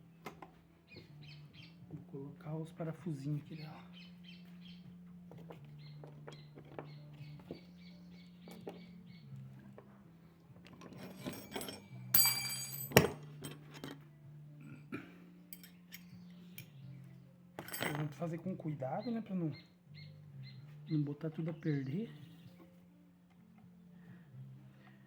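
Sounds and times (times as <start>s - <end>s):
metal screws clinking: 10.6s - 14.0s, 15.5s - 16.7s, 17.6s - 18.2s
ringing clink: 11.0s - 13.2s, 15.5s - 16.7s.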